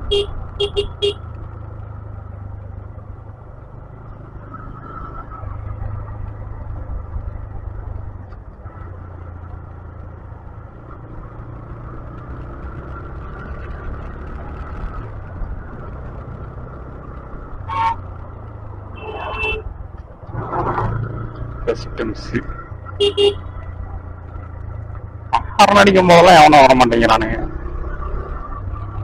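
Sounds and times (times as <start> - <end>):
motorcycle engine rumble: 0.0 - 29.0
road noise: 0.0 - 29.0
horn toots: 0.1 - 1.2, 17.6 - 18.1, 18.9 - 19.7, 23.0 - 23.5.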